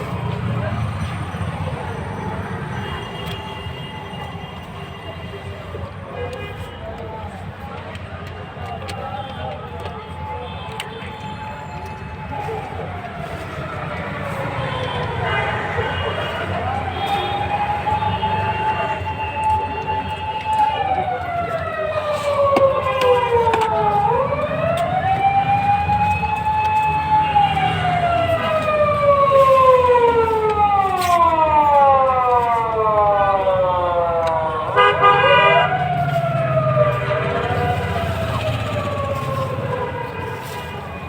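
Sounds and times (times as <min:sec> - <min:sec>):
siren wailing: 0:11.6 - 0:41.0.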